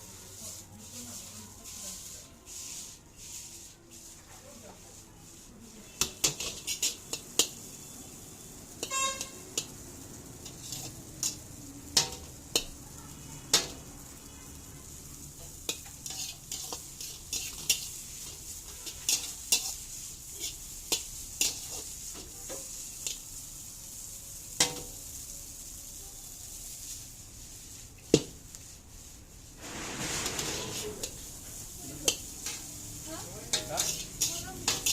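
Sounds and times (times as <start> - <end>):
noodles sizzling in a pan: 0.0 - 34.9
metal utensil scraping a pan: 0.2 - 12.8, 13.5 - 14.1, 15.1 - 23.3, 24.5 - 25.1, 29.6 - 34.9.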